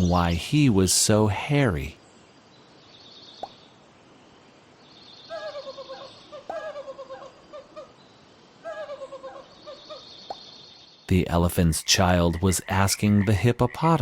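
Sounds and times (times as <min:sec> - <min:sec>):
animal calls with falling notes: 0:05.2 - 0:10.6.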